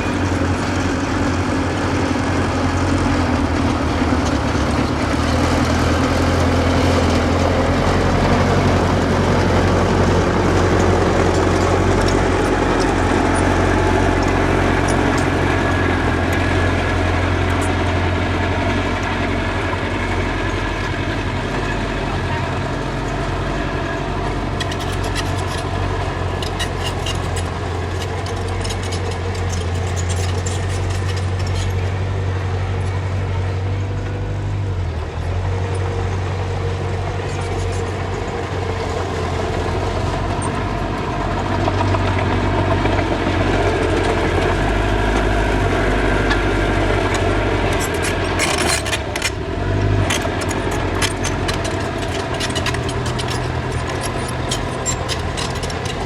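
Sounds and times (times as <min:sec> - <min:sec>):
diesel engine running: 0:00.0 - 0:56.0
sharp clicks and clanks: 0:03.6 - 0:32.2, 0:41.5 - 0:56.0.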